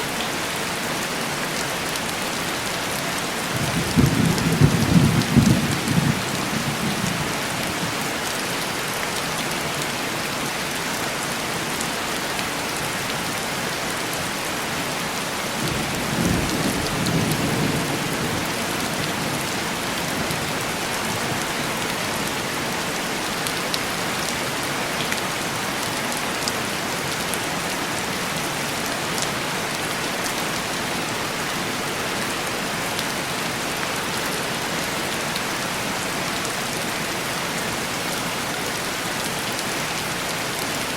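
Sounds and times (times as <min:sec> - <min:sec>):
heavy rain on a window: 0:00.2 - 0:40.9.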